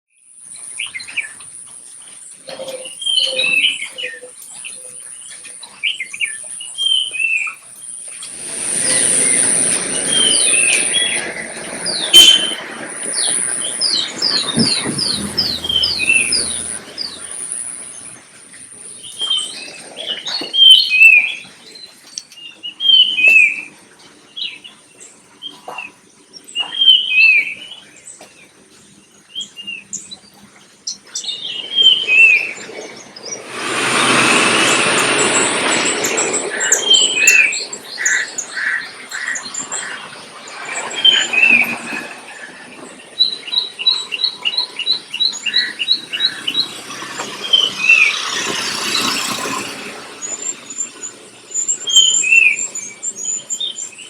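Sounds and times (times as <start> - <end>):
loud rushing noise: 8.3 - 18.2, 33.2 - 38.4, 45.7 - 51.2
birds chirping and singing: 8.8 - 18.2, 30.9 - 54.0.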